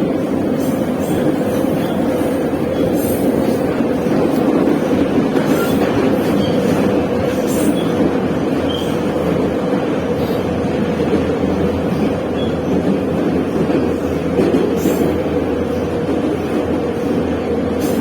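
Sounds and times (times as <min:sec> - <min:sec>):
train wheels rumbling on rails: 0:00.0 - 0:18.0
short wheel squeals: 0:05.5 - 0:06.8, 0:08.7 - 0:09.0.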